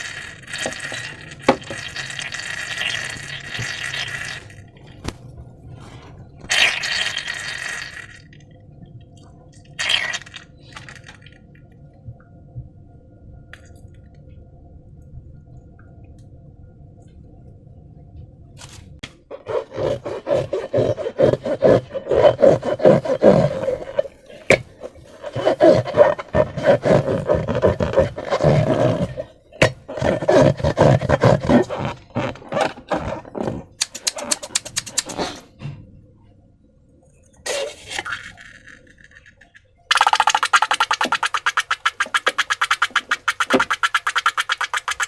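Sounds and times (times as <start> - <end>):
slime squelching and crackling: 19.4 - 35.3, 39.9 - 45.0.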